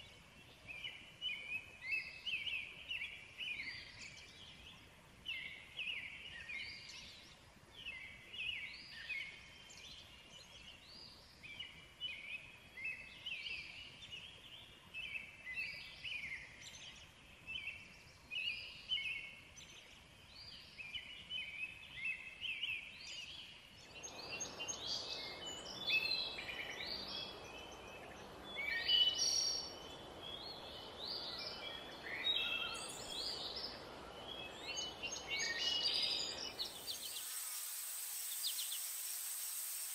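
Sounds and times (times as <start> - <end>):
steady rushing hiss: 23.8 - 39.9.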